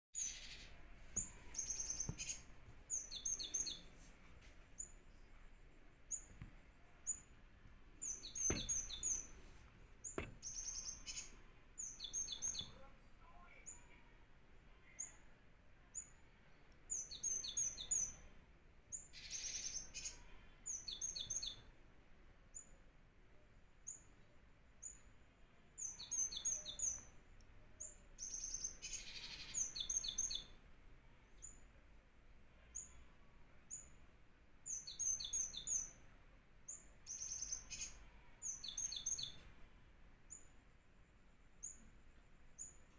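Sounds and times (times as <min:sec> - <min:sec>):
tits calling: 0:00.2 - 0:04.0, 0:08.0 - 0:12.8, 0:16.9 - 0:18.3, 0:18.9 - 0:21.7, 0:25.8 - 0:27.2, 0:27.8 - 0:30.6, 0:34.7 - 0:36.0, 0:36.7 - 0:39.5.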